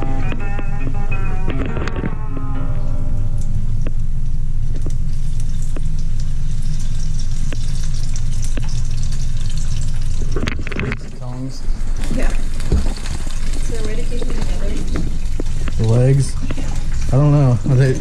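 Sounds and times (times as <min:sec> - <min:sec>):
strong low rumble: 0:00.0 - 0:18.0
food sizzling in frying oil: 0:11.3 - 0:18.0.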